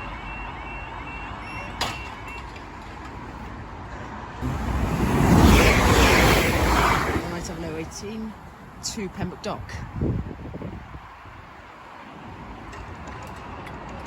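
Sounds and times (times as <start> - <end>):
level crossing alarm: 0.0 - 2.5
train wheels rumbling on rail: 4.4 - 8.1.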